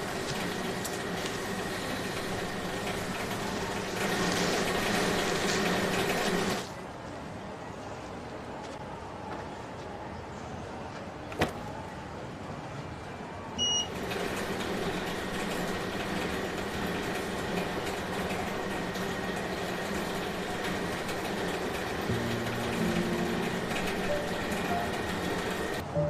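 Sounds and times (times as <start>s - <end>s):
wrapping machine motor humming: 0.0s - 6.7s, 13.9s - 25.8s
short beep: 13.6s - 13.9s.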